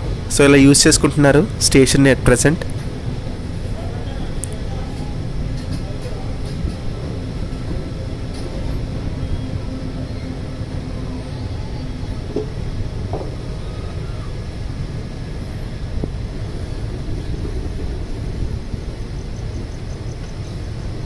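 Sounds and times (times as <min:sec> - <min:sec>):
train rumbling along track: 0:00.0 - 0:21.0.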